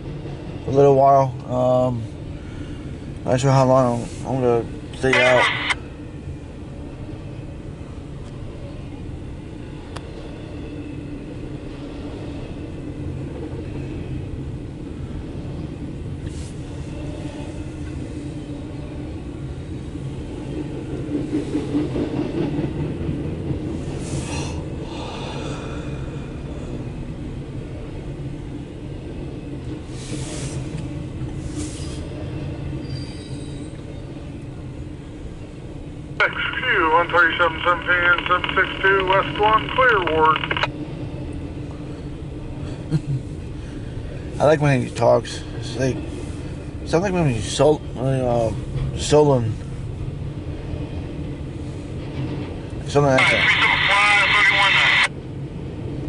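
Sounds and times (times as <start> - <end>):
freight train wheels rumbling on rail: 0.0 - 56.0
faint high squeal: 32.8 - 33.9.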